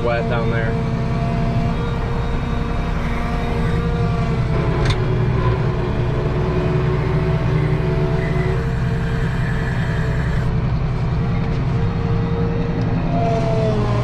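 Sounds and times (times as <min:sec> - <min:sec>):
tractor engine under load: 0:00.0 - 0:14.0.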